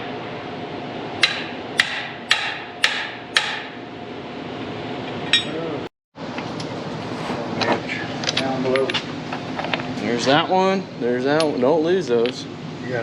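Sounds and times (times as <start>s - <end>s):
hammer striking metal: 1.2s - 3.8s.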